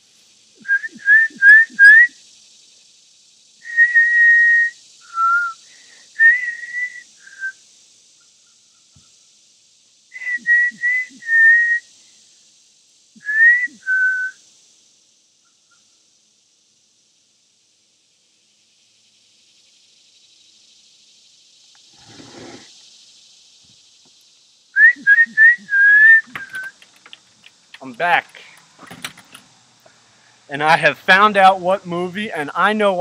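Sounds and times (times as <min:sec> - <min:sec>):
woman whistling: 0:00.6 - 0:02.1, 0:03.7 - 0:05.6, 0:06.2 - 0:07.5, 0:10.2 - 0:11.8, 0:13.2 - 0:14.4, 0:24.8 - 0:26.8.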